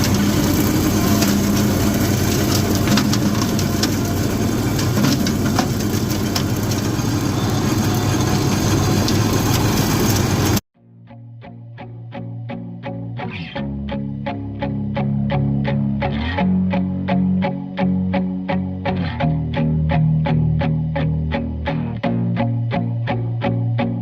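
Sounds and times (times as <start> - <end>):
garden tractor engine running: 0.0 - 10.6
mower cutting: 0.0 - 10.6.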